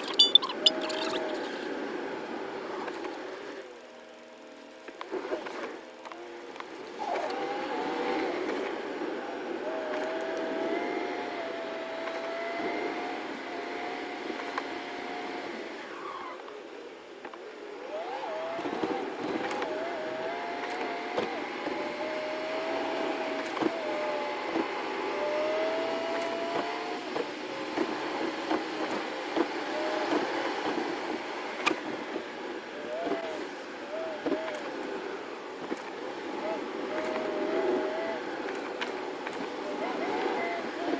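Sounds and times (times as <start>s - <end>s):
wavering whine: 0.0s - 14.0s
car driving through snow: 17.7s - 40.9s.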